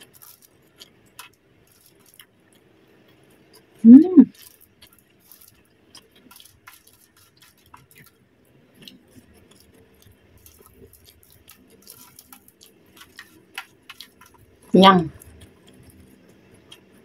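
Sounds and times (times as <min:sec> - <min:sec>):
faint chewing of fries: 0:00.0 - 0:17.0
fingers picking food off foil: 0:04.4 - 0:08.2, 0:08.8 - 0:14.5.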